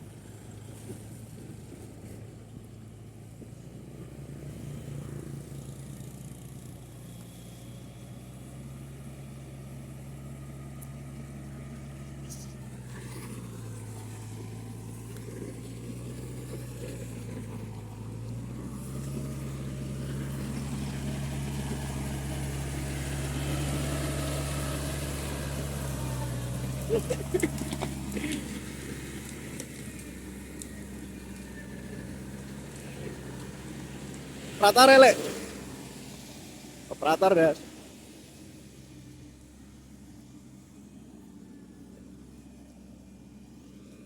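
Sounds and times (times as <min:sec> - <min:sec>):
plowing machine engine running: 0:00.0 - 0:44.0.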